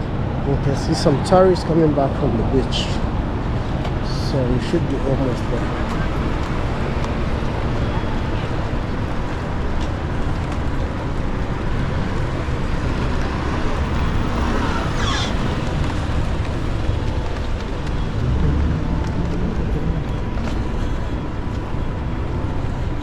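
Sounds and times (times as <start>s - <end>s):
road traffic passing: 0.0s - 23.0s
brief rising and falling sound: 18.2s - 20.3s.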